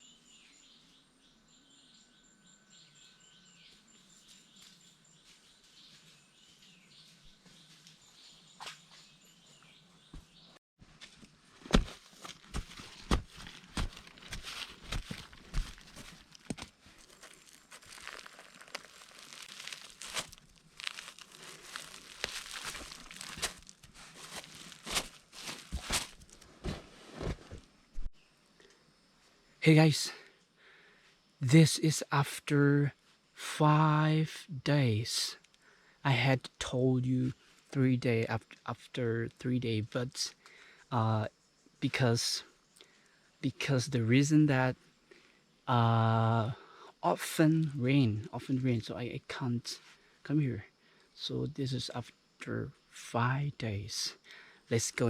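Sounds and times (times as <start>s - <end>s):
steady insect tone: 0.0s - 10.1s, 27.6s - 55.0s
footsteps through dry leaves and twigs: 10.9s - 27.7s
high insect trill: 15.1s - 26.4s.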